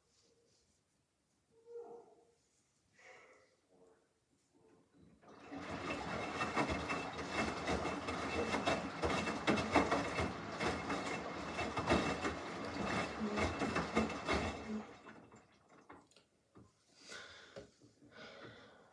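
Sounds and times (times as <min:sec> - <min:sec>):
washing machine drum clattering: 0:05.2 - 0:16.0.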